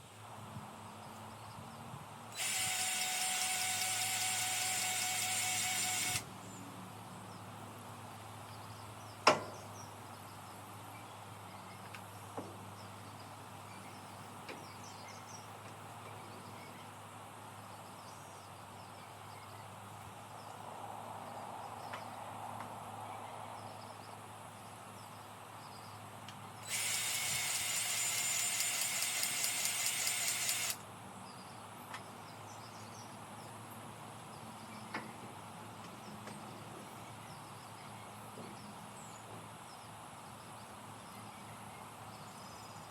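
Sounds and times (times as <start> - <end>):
grease gun clicking and pulsing: 2.4 - 6.2, 26.6 - 30.8.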